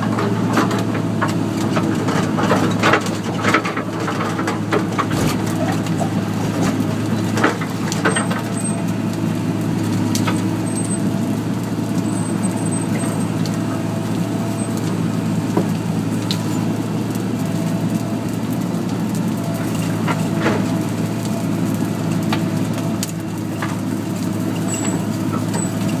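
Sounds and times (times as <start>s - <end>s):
excavator diesel engine: 0.0s - 26.0s
sharp knocks and cracks: 4.8s - 6.8s.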